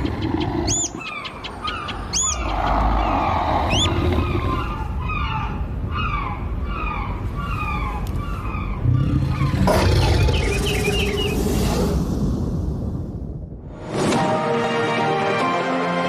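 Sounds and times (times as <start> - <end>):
animal chirping calls: 0.0 - 11.4.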